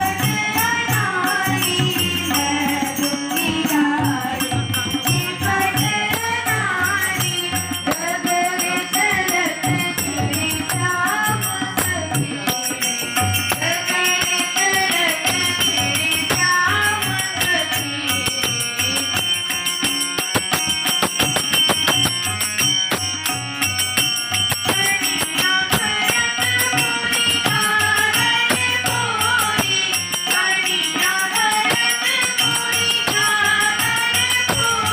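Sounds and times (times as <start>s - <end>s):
girls singing devotional song: 0.0s - 12.8s, 13.5s - 19.0s, 24.6s - 34.9s
rattling hand percussion: 0.0s - 34.9s
steady drum beat: 20.3s - 34.9s.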